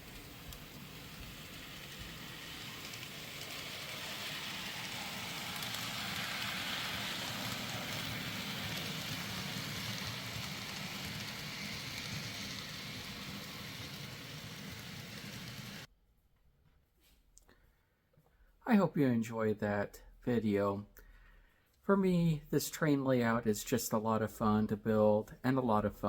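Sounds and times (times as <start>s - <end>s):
model train rolling on track: 0.0s - 15.9s.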